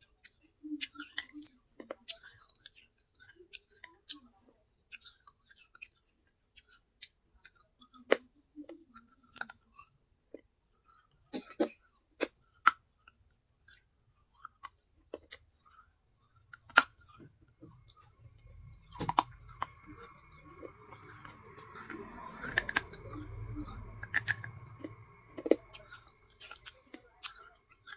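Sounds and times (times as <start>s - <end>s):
low steady hum: 14.8s - 27.9s.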